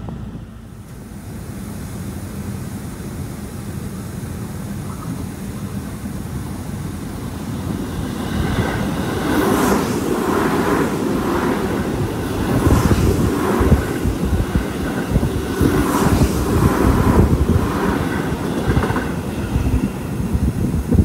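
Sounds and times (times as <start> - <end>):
train wheels rumbling on rails: 0.0 - 21.0
train wheels clattering: 7.7 - 20.6.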